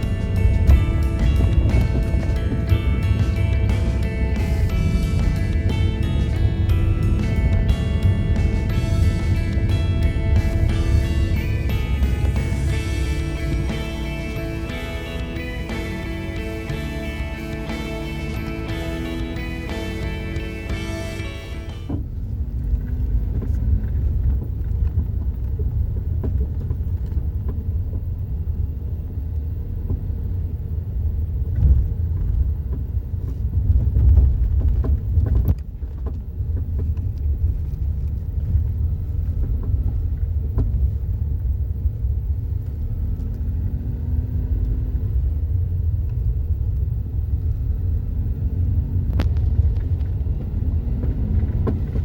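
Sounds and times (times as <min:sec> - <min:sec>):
suspension knocks and clatter: 0:00.0 - 0:21.2, 0:21.9 - 0:28.2, 0:31.4 - 0:41.6, 0:49.0 - 0:52.0
road noise rumble: 0:00.0 - 0:52.0.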